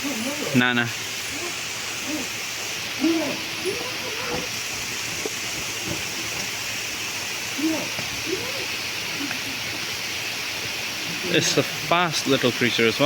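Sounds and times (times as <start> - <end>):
rain falling: 0.0 - 13.0
low voice-like sounds: 3.0 - 4.5, 7.6 - 9.6.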